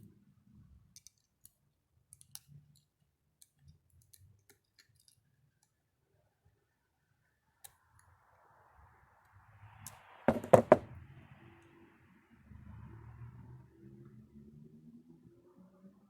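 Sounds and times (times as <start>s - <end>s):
small metal parts clicking: 0.9s - 5.2s.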